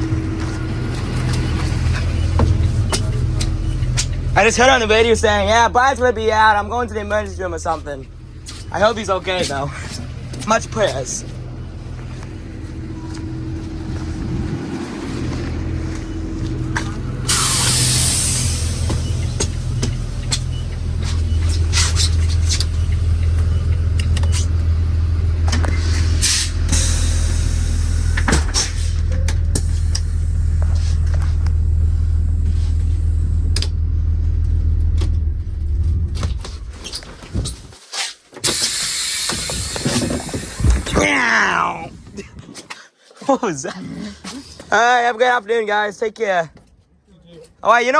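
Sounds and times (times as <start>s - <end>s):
diesel bus engine idling: 0.0s - 37.7s, 38.4s - 42.1s
air hiss: 17.2s - 19.8s, 26.0s - 28.9s, 38.4s - 41.0s.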